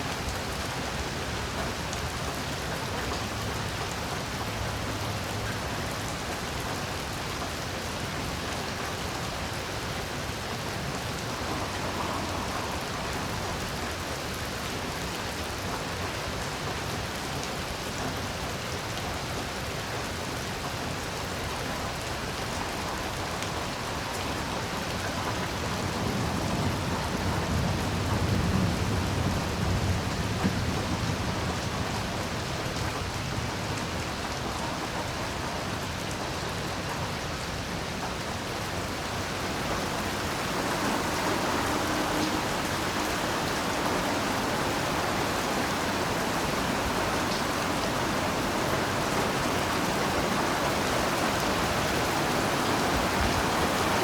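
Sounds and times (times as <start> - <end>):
heavy rain falling: 0.0 - 54.0
low rumble of thunder: 23.6 - 34.0, 38.9 - 53.9.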